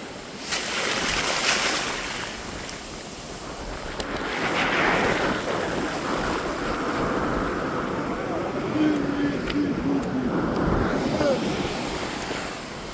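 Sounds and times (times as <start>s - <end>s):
sea waves washing in: 0.0s - 12.9s.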